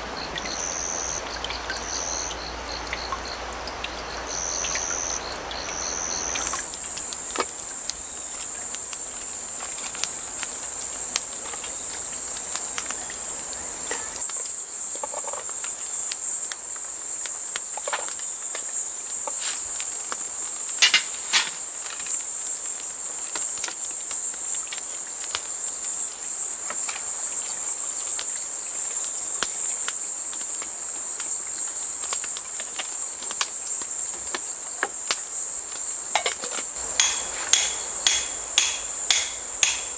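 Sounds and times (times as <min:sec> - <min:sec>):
crickets trilling: 0:00.0 - 0:39.9
sharp clicks and knocks: 0:36.2 - 0:39.9.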